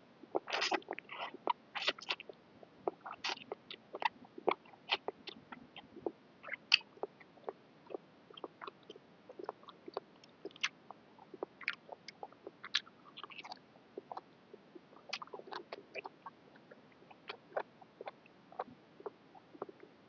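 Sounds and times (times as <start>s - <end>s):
person chewing noodles: 11.3s - 14.2s, 15.1s - 18.7s.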